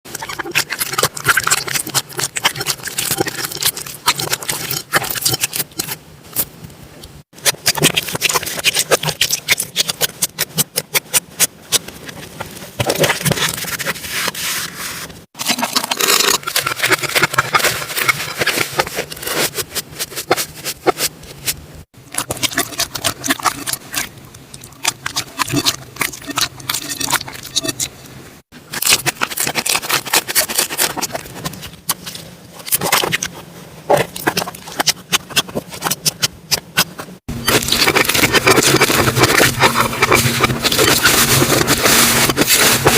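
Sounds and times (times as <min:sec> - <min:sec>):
slime clicking and crackling: 0:00.1 - 0:06.5, 0:07.4 - 0:12.1, 0:22.0 - 0:27.9, 0:33.9 - 0:42.9.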